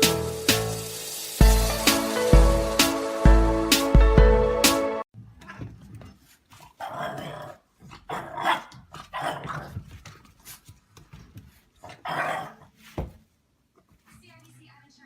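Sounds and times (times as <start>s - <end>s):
dog barking in rough bursts: 8.1s - 9.5s.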